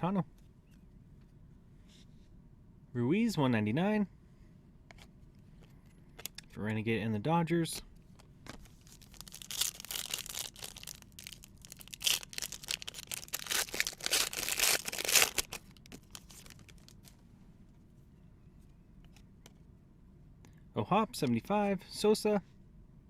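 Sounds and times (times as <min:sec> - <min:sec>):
wrapper tearing and crinkling: 0:08.8 - 0:17.1.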